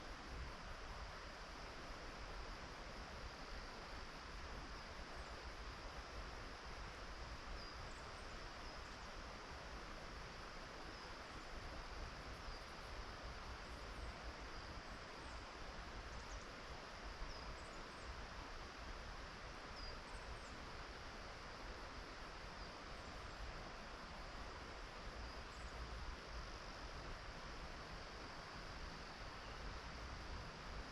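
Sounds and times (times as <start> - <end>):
outdoor hiss: 0.0 - 30.9
faint bird chirps: 10.9 - 11.4, 12.4 - 12.8, 16.1 - 16.6, 17.2 - 18.2, 19.7 - 20.6, 29.2 - 29.7.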